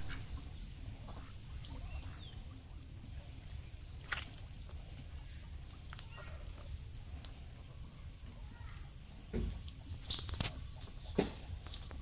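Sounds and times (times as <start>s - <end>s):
ducks calling: 0.0s - 2.8s.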